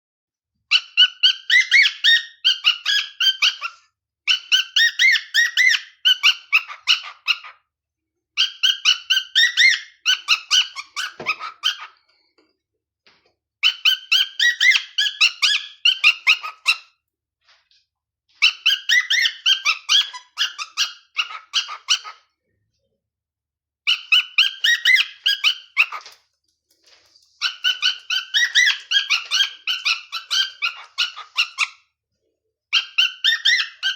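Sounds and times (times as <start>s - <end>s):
cockatiel whistling: 0.7s - 7.5s, 13.6s - 16.8s, 18.4s - 22.2s, 23.9s - 26.1s, 27.4s - 31.8s, 32.7s - 33.9s.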